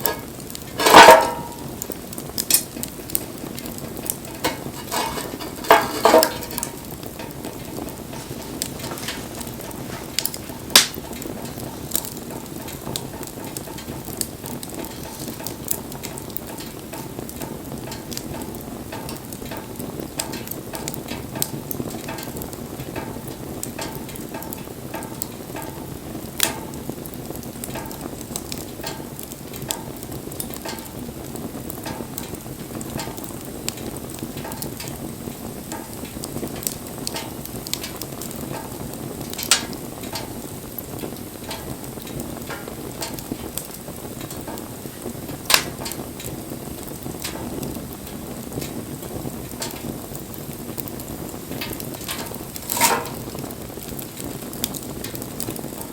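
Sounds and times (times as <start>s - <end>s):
bonfire crackling and popping: 0.0s - 55.9s.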